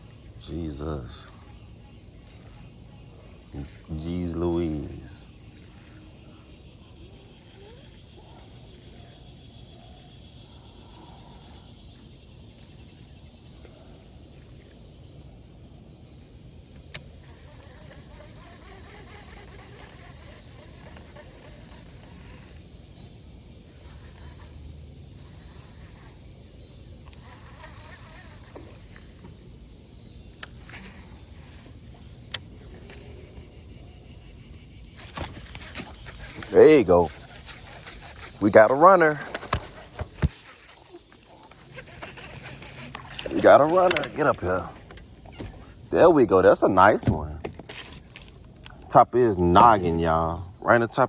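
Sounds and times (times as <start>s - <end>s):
low background hiss: 0.0s - 39.9s
faint animal calls: 0.4s - 11.8s, 17.1s - 23.0s, 23.6s - 29.4s, 30.6s - 47.3s.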